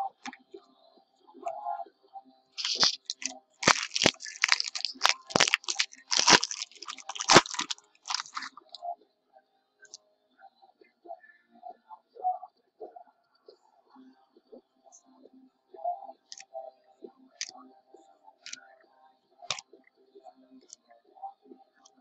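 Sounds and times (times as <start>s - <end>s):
crinkling card packaging: 2.6s - 8.8s.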